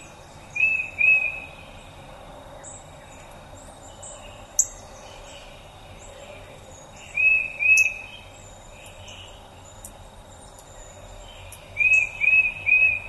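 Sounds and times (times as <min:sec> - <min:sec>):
outdoor background noise: 0:00.0 - 0:13.0
songbird whistled notes: 0:00.5 - 0:01.6, 0:07.0 - 0:09.4, 0:11.4 - 0:13.0.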